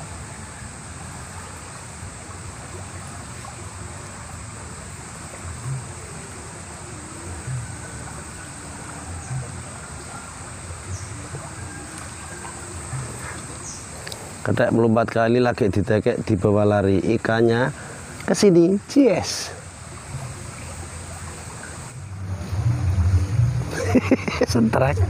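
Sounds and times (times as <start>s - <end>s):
flowing river water: 0.0s - 25.0s
high-pitched whine: 20.1s - 25.0s
dull low thumps: 21.9s - 25.0s.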